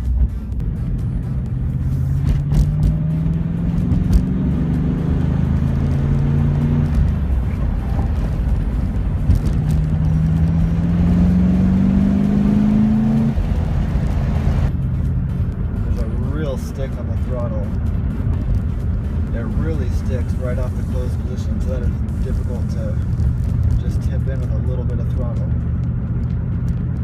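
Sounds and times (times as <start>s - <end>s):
car engine revving under throttle: 1.3s - 15.3s.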